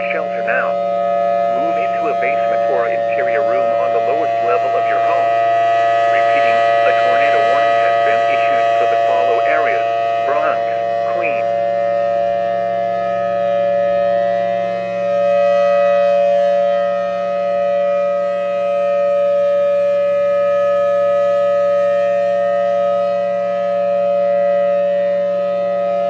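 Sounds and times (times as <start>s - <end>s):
two-tone warning siren: 0.0s - 26.0s.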